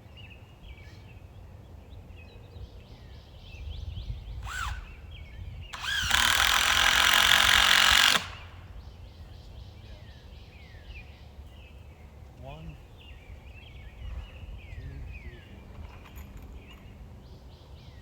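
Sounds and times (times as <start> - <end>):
power drill spinning: 4.4 - 5.0, 5.7 - 8.6.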